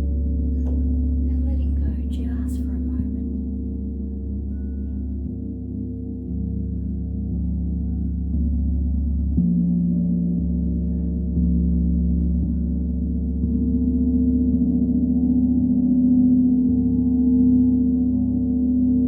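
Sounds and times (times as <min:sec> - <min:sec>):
deep ringing sound-bath tones: 0:00.0 - 0:19.0.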